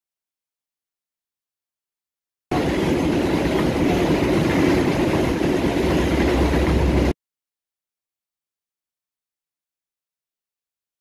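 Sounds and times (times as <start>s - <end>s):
train carriages passing at speed: 2.5s - 7.2s.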